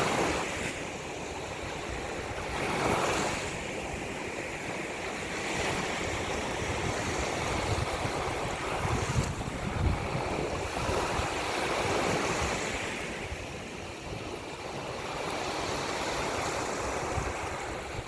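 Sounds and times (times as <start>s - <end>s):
ocean waves breaking: 0.0s - 18.0s
wind rumbling on microphone: 5.4s - 14.4s, 15.6s - 18.0s
wind blowing: 5.8s - 13.6s.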